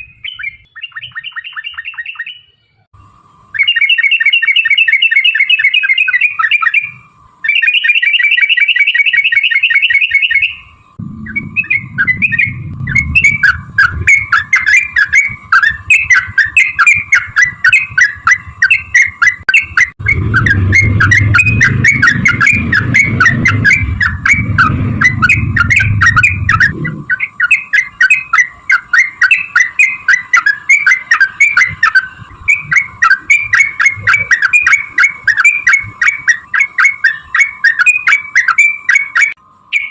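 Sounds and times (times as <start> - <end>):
bird chattering notes: 0.0 - 2.6, 3.6 - 39.9
bird trills: 0.0 - 39.9
low rumble: 11.0 - 19.0, 19.9 - 27.4.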